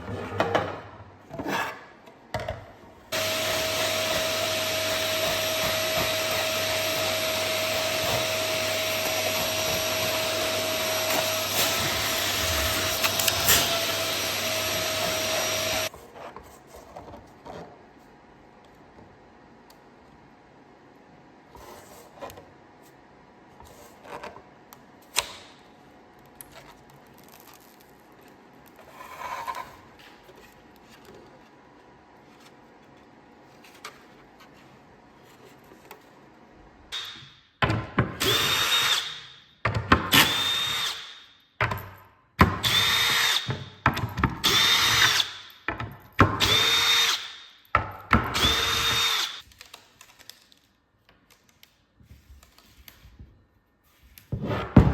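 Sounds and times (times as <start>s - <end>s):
electric drill whirring: 3.2s - 15.9s, 38.2s - 39.2s, 40.1s - 41.1s, 42.6s - 43.5s, 44.4s - 45.4s, 46.4s - 47.4s, 48.3s - 49.4s.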